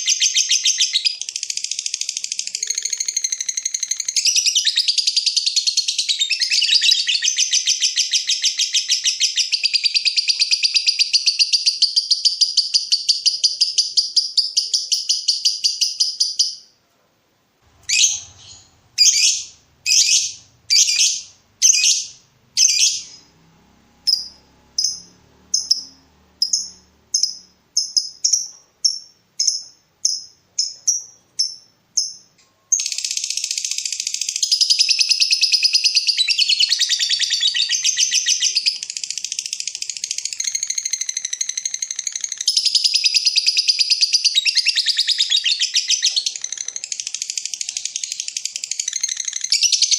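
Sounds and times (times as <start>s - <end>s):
bird chirps: 0.0s - 16.8s, 17.6s - 49.9s
shrill bird calls: 0.0s - 16.8s, 17.7s - 49.9s
lovebird chattering trill: 17.7s - 23.3s, 24.0s - 49.9s.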